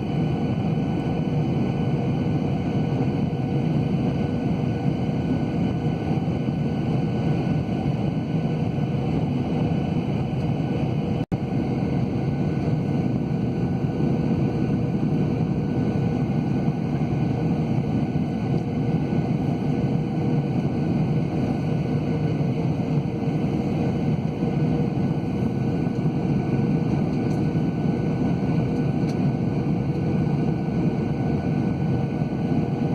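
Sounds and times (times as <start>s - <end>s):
jet engine roar in cabin: 0.0s - 32.9s.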